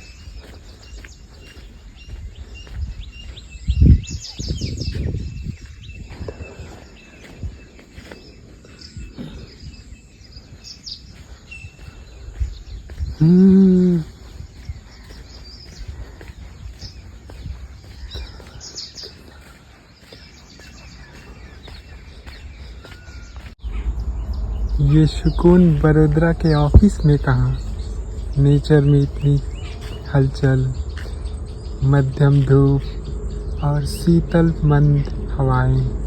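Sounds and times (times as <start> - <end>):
wind on microphone: 0.0 - 19.0
small birds chirping: 0.0 - 36.0
low voice-like hum: 13.2 - 14.2, 24.4 - 36.0.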